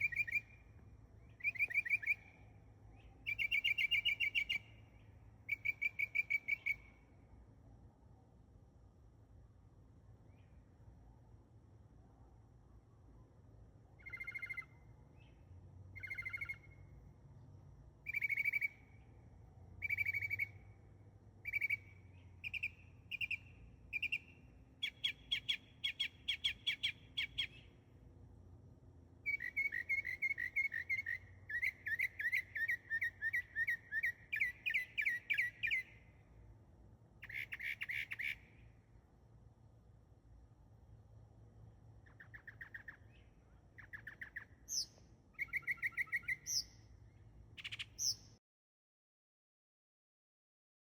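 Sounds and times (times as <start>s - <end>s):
songbird singing: 0.0s - 7.2s, 13.9s - 28.0s, 29.2s - 36.4s, 37.2s - 39.0s, 41.9s - 48.4s.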